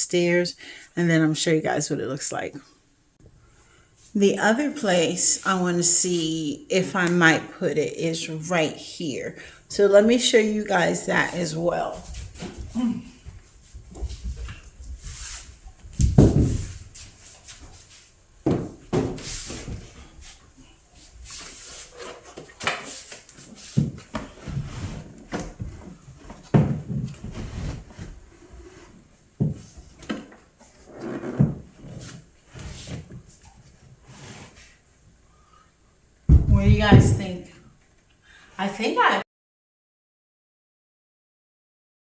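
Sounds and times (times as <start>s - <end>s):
heavy thumps: 10.6s - 17.8s, 36.3s - 37.5s.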